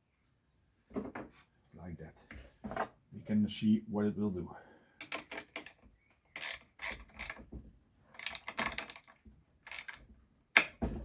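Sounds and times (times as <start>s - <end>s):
chainsaw chain ratcheting clicks: 6.4s - 7.4s, 8.2s - 10.0s.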